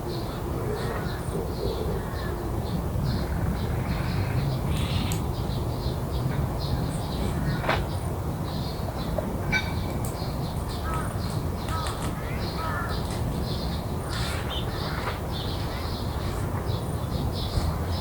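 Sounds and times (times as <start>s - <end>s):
birds calling: 0.1s - 18.0s
crow cawing: 11.7s - 13.0s.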